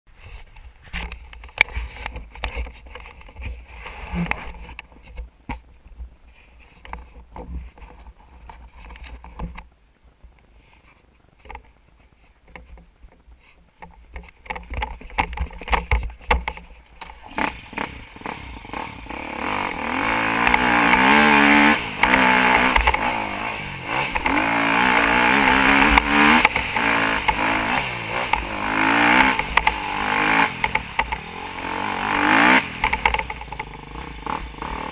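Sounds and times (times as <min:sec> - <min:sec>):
motocross bike engine revving: 0:17.2 - 0:34.9.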